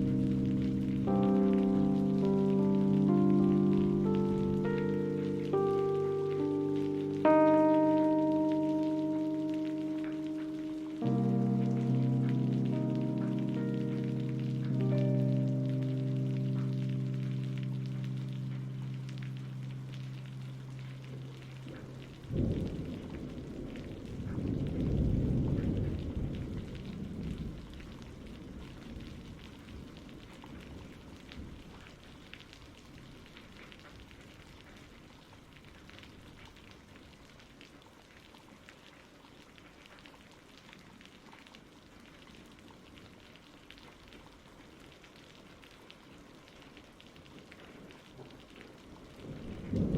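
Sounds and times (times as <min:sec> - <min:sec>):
steady rain patter: 0:00.0 - 0:49.9
low rumble of thunder: 0:17.0 - 0:31.9, 0:48.9 - 0:49.9.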